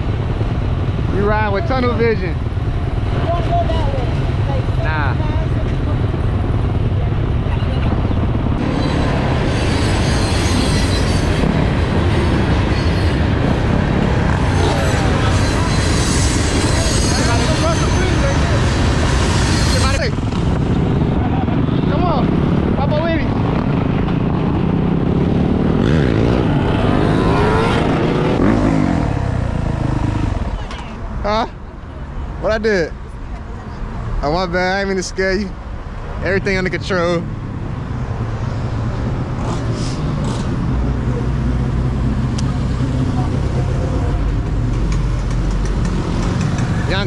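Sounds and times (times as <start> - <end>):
motorcycle engines revving: 0.0 - 31.5, 36.2 - 47.0
road noise: 0.0 - 47.0
wind on microphone: 5.4 - 16.6.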